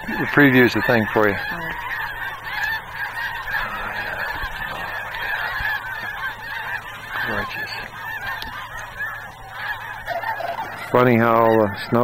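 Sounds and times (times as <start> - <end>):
geese calling: 0.0 - 12.0.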